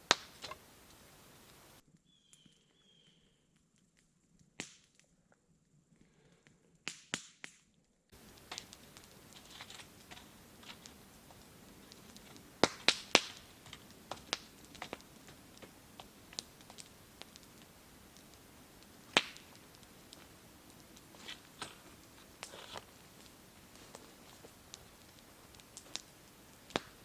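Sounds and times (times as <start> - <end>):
campfire crackling: 0.0 - 1.8, 8.1 - 27.0
low hiss: 0.0 - 1.8, 8.2 - 27.0.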